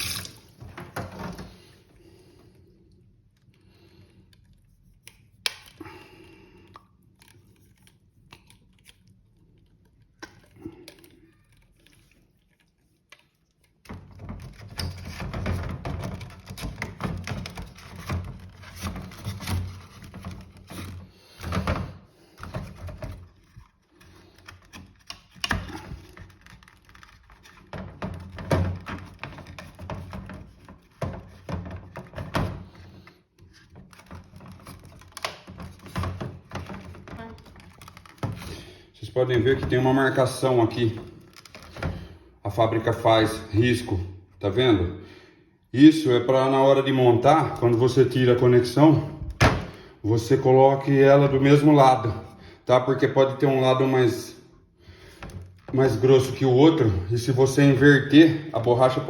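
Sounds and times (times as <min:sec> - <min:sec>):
plastic parts clicking: 0:33.5 - 0:38.5.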